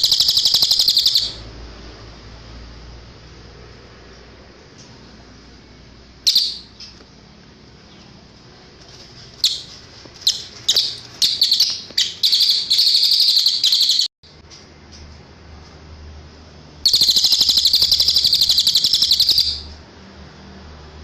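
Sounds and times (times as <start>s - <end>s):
bird chirping and trilling: 0.0s - 1.5s, 6.2s - 7.0s, 9.4s - 14.1s, 16.8s - 19.8s
sharp high bird call: 0.0s - 1.5s, 10.3s - 14.1s, 16.8s - 19.8s.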